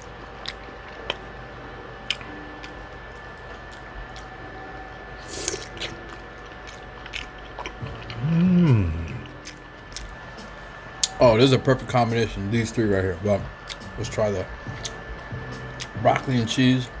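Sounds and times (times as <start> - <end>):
close chewing: 0.4 - 1.2, 2.0 - 4.4, 5.3 - 10.2
person humming in enjoyment: 8.0 - 9.4.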